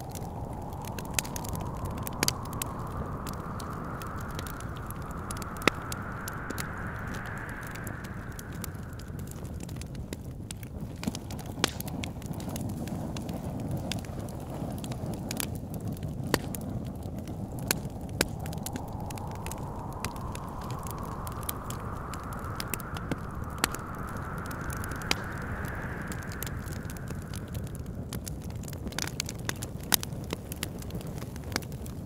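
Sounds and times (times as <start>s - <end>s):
low steady rumble: 0.0s - 10.2s, 17.1s - 28.7s
wind gust whistling: 0.0s - 10.4s, 15.9s - 29.6s
wood fire crackling and popping: 0.0s - 32.0s.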